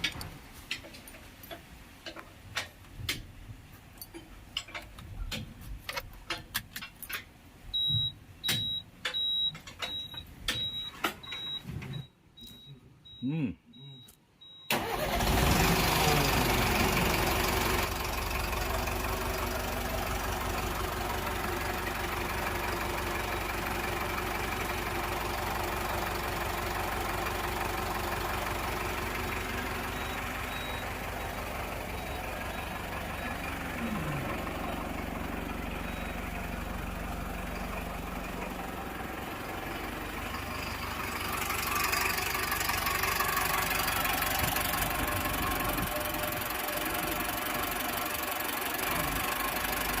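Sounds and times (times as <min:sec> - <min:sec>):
engine idling: 0:14.7 - 0:50.0.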